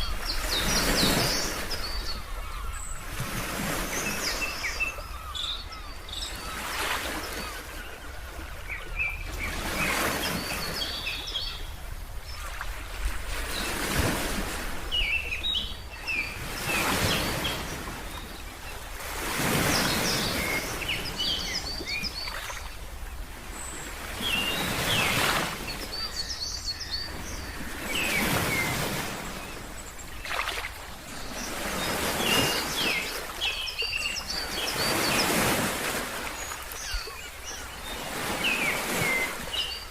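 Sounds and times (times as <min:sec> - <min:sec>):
small birds chirping: 0:14.9 - 0:22.8, 0:23.6 - 0:39.9.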